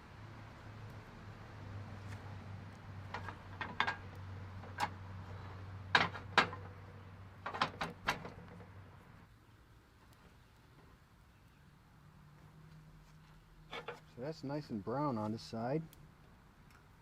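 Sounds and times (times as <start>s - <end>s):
metal clanks and taps: 3.1s - 5.0s, 5.9s - 6.8s, 13.7s - 14.1s.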